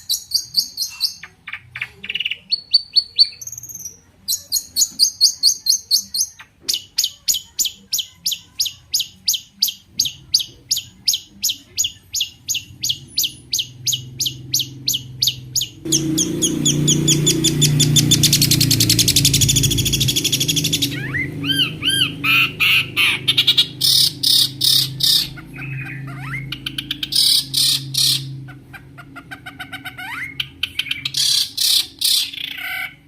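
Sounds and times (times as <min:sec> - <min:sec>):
bird singing sharp chirps: 0:10.0 - 0:28.4.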